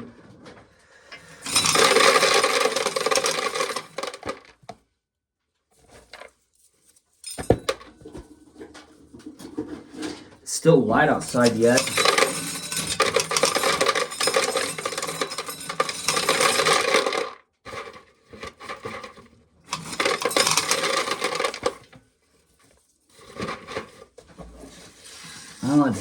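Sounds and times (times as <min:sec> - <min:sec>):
corn kernels clattering into pail: 0:01.4 - 0:04.6, 0:11.0 - 0:21.9.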